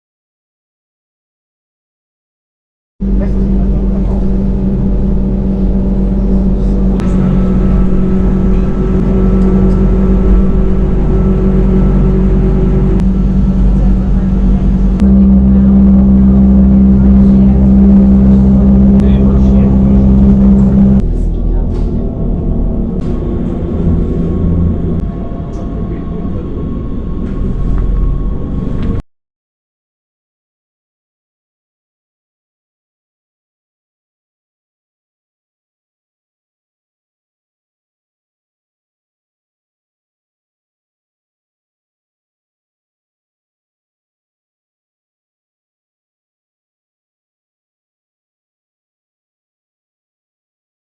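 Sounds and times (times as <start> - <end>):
faint whine: 3.0 - 29.0
train rumbling: 3.0 - 29.0
vehicle mechanical hum: 3.0 - 29.0.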